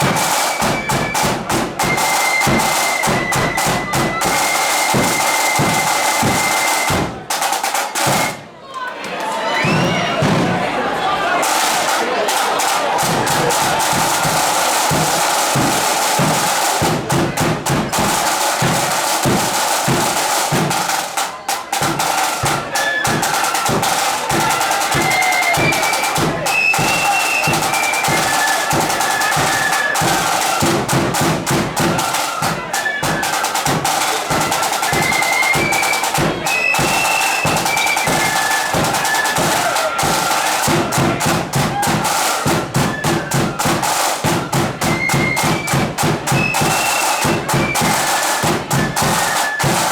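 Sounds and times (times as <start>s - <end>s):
flutes playing high melody: 0.0s - 7.1s, 22.1s - 30.8s, 31.8s - 41.1s, 42.2s - 44.0s, 44.8s - 49.9s
rapid snare drum strokes: 0.0s - 8.5s, 9.6s - 49.9s.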